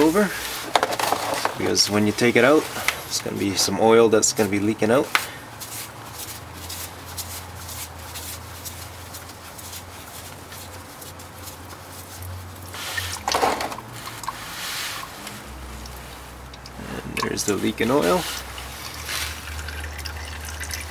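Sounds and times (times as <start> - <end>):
oil filter clicks and scrapes: 0.5 - 1.9, 12.7 - 20.9.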